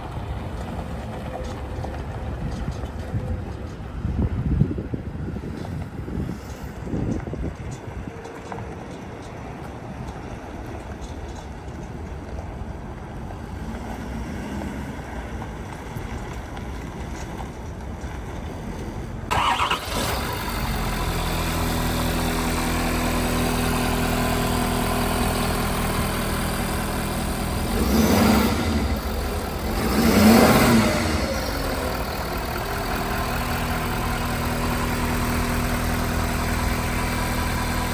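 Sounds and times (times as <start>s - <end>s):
truck engine starting and idling: 0.0s - 37.9s
engine revving: 19.3s - 37.9s.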